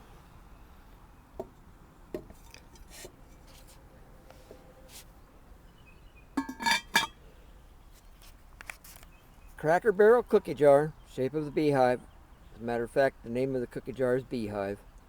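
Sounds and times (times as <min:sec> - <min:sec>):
ceramic clinking: 0:06.4 - 0:07.2
ceramic lid knocking: 0:06.4 - 0:07.2.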